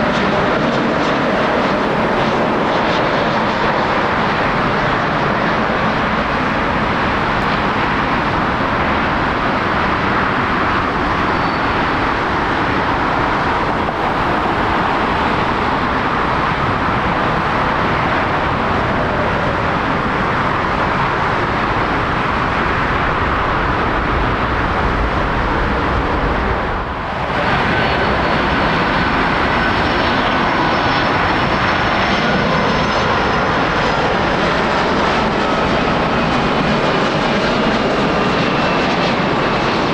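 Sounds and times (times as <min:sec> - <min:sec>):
jet engines rushing: 0:00.0 - 0:39.9.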